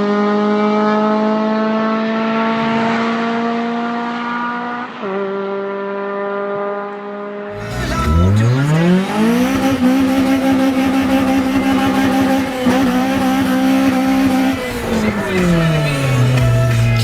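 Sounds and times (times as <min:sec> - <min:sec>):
car engine revving hard: 0:07.5 - 0:17.0.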